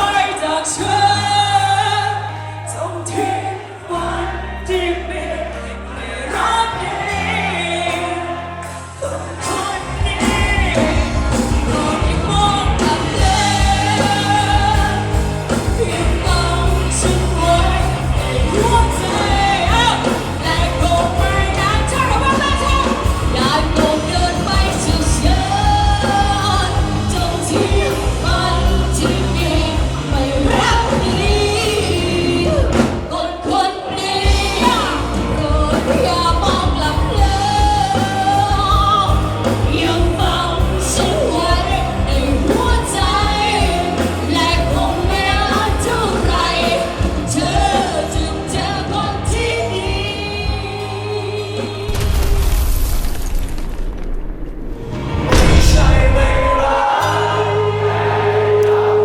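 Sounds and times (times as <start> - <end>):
band with heavy bass and beat: 0.0 - 5.7, 6.3 - 51.9, 55.2 - 59.0
person singing pop song: 0.0 - 52.5, 55.3 - 59.0
loud burst of noise: 51.8 - 57.0.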